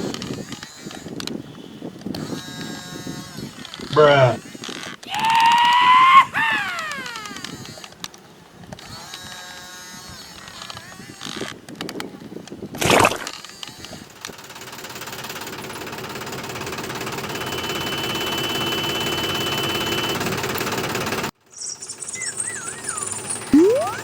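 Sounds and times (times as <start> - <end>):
small motor running: 0.0 - 1.4, 2.1 - 5.1, 6.9 - 8.0, 8.8 - 11.6, 13.4 - 24.0
sliding whistle tones: 17.3 - 20.2, 21.6 - 24.0.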